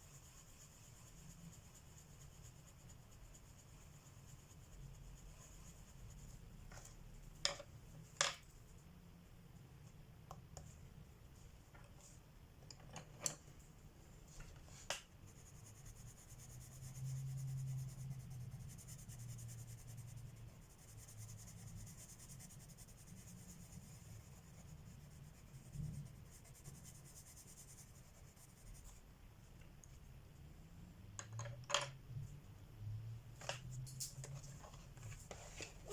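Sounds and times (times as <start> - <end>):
pencil scratching on paper: 15.3 - 29.0.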